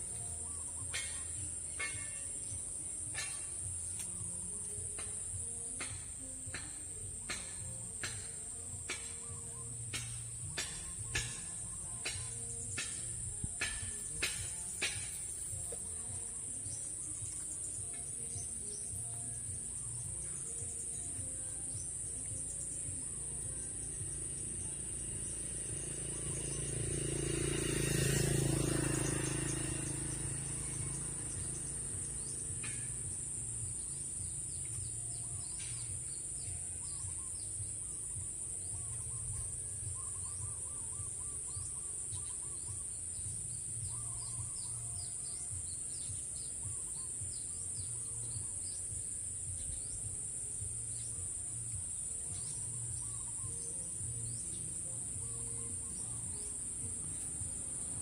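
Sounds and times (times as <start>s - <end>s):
low warbling bird calls: 0.0s - 5.0s, 22.1s - 58.0s
bird chirps: 0.0s - 58.0s
insect drone: 0.0s - 58.0s.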